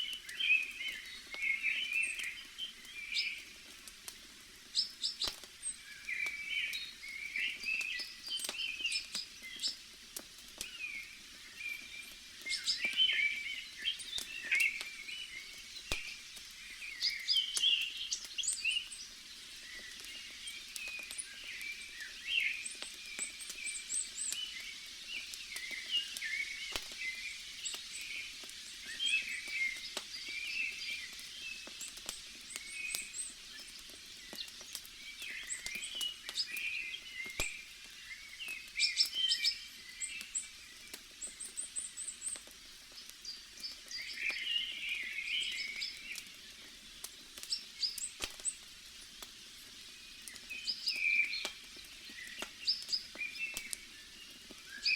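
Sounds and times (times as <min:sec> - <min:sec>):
campfire crackling: 0:00.0 - 0:54.9
forest ambience hiss: 0:00.0 - 0:54.9
birds chirping: 0:10.6 - 0:48.6, 0:49.6 - 0:54.9.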